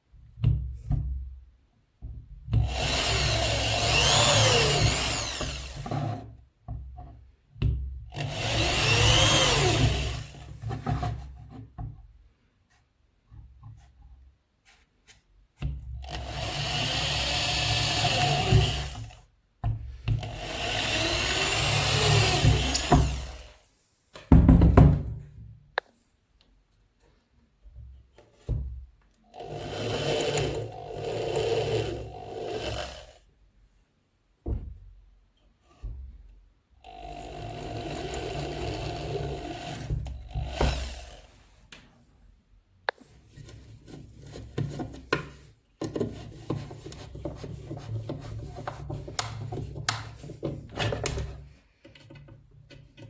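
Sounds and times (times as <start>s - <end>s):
disc sander running: 2.9s - 6.1s, 20.9s - 23.5s.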